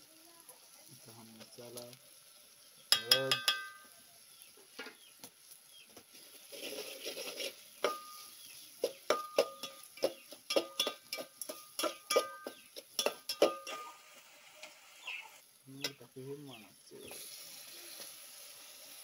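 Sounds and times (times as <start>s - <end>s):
metal spoon clinking in pot: 2.9s - 3.9s, 7.8s - 8.3s, 9.1s - 13.9s.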